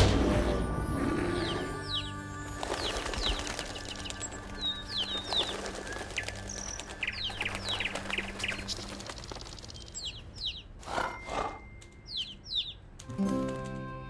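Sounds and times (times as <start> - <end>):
music: 0.0 - 9.6, 13.0 - 14.0
small birds chirping: 1.0 - 13.0.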